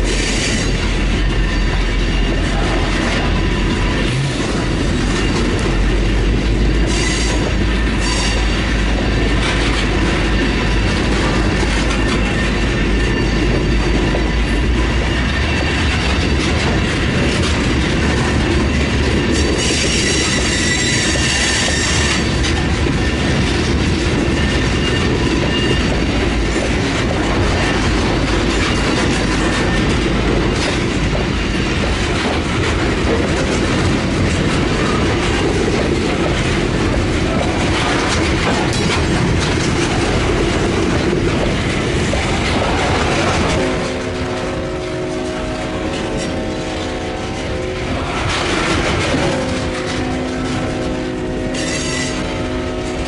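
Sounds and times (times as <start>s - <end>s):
train wheels rumbling on rail: 0.0s - 53.0s
clicking over rail joints: 0.3s - 53.0s
high-pitched wheel squeal: 6.7s - 8.7s, 18.7s - 22.3s, 24.3s - 26.0s, 51.4s - 52.8s.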